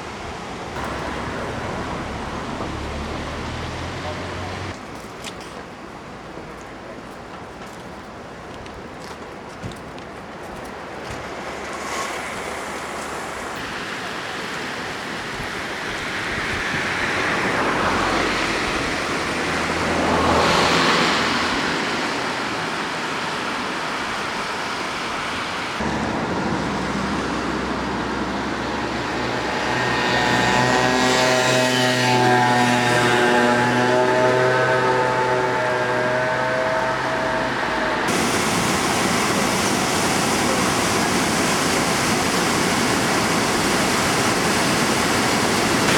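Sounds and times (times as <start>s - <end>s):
tyres hissing through water: 10.9s - 29.8s, 36.8s - 45.9s.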